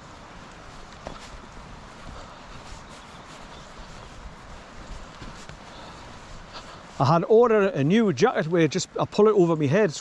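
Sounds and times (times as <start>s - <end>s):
wind rumble on microphone: 0.0s - 7.0s
faint soft footsteps: 0.0s - 7.1s.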